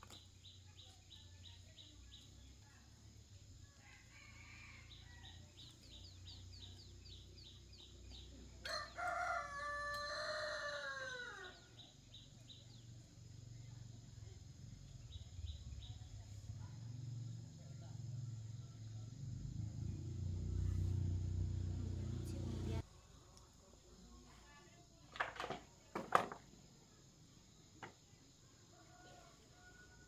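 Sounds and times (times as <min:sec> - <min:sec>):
rooster crowing: 0:08.6 - 0:11.6.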